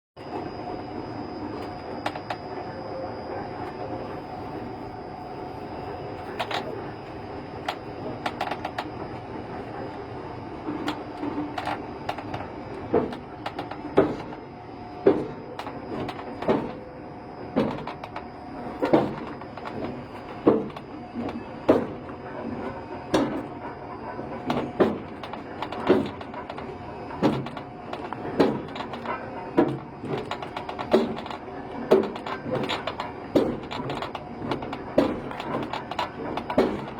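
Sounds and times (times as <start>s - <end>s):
turntable mechanical rumble: 0.2s - 36.9s
metallic clicks and clanks: 24.3s - 36.9s.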